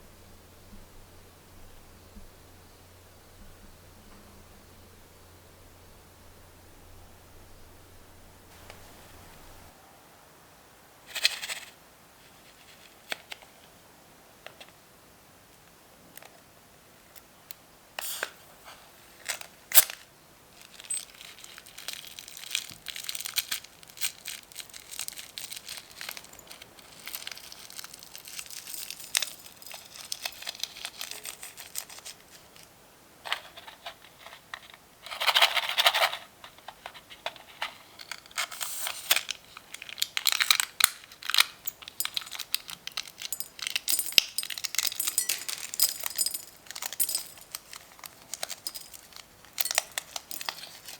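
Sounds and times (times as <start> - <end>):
slime crinkling and crackling: 20.6 - 32.4, 39.2 - 50.9.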